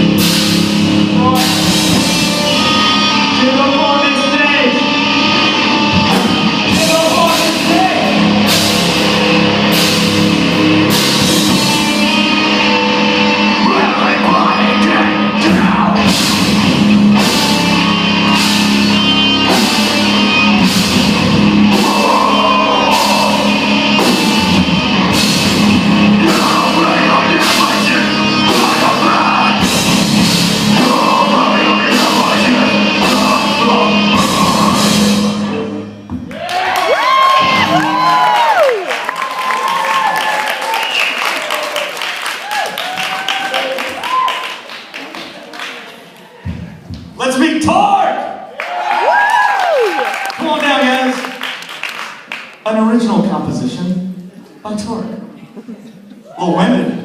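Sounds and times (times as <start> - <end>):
drum kit: 0.0 - 40.8
electric guitars: 0.0 - 41.8
person singing: 11.6 - 16.2, 21.6 - 24.8, 25.8 - 35.7.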